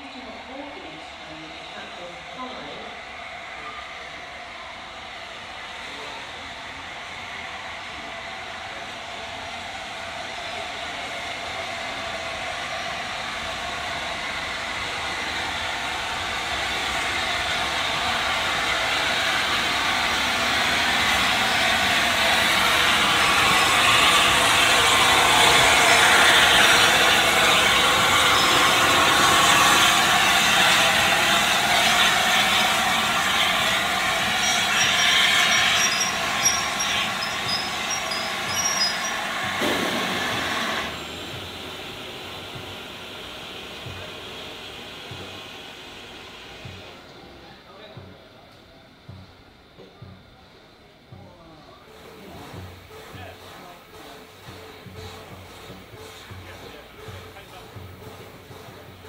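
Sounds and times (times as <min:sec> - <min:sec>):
train rumbling past: 0:00.0 - 0:59.0
high wheel squeals: 0:19.4 - 0:39.6.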